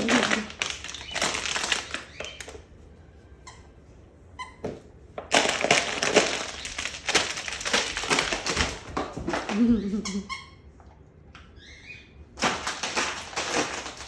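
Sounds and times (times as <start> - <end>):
dog chewing crinkly toy: 0.0 - 2.6, 5.3 - 9.4.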